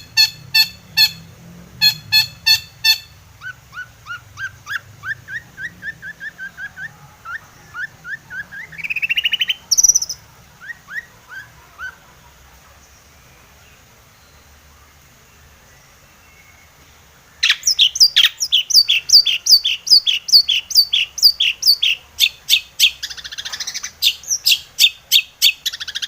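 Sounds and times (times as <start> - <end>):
shrike singing: 0.0 - 12.1, 17.4 - 26.0.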